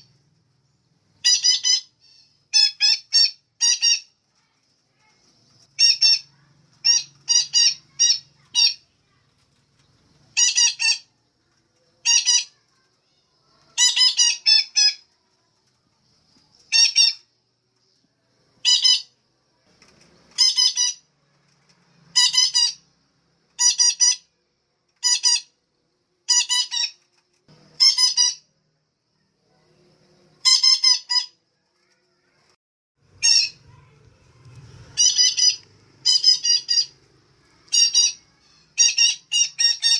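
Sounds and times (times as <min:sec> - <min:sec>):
parakeet squawking: 0:01.2 - 0:04.1, 0:05.8 - 0:08.9, 0:10.4 - 0:11.1, 0:12.0 - 0:12.7, 0:13.7 - 0:15.0, 0:16.7 - 0:17.2, 0:18.6 - 0:19.2, 0:20.3 - 0:21.1, 0:22.1 - 0:22.9, 0:23.6 - 0:24.3, 0:25.0 - 0:25.6, 0:26.3 - 0:27.0, 0:27.8 - 0:28.5, 0:30.4 - 0:31.4, 0:33.2 - 0:34.0, 0:34.8 - 0:39.9.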